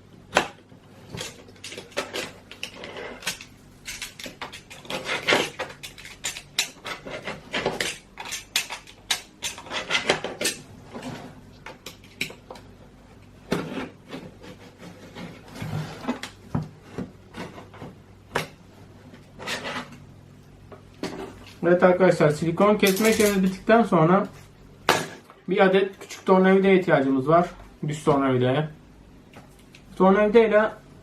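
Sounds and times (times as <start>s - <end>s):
knife scraping sealant: 2.6s - 10.6s.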